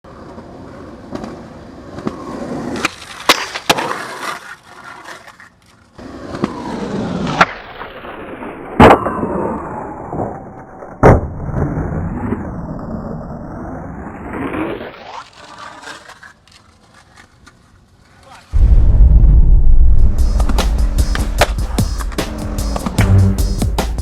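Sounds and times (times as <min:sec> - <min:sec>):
skateboard wheels rolling on concrete: 0:00.0 - 0:18.6, 0:20.0 - 0:24.0
skateboard clacks: 0:00.1 - 0:07.6
loud skateboard impacts: 0:01.0 - 0:04.4, 0:10.9 - 0:11.9, 0:20.2 - 0:24.0.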